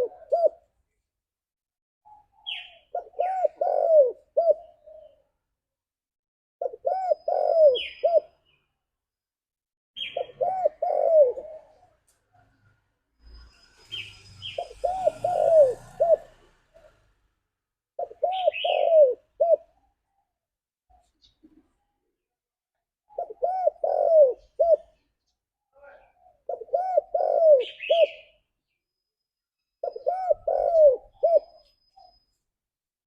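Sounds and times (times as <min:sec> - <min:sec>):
dove cooing: 0:00.0 - 0:00.7, 0:02.1 - 0:05.3, 0:06.6 - 0:08.6, 0:10.0 - 0:12.1, 0:14.4 - 0:17.1, 0:18.0 - 0:20.0, 0:23.1 - 0:25.0, 0:25.8 - 0:28.4, 0:29.8 - 0:32.2.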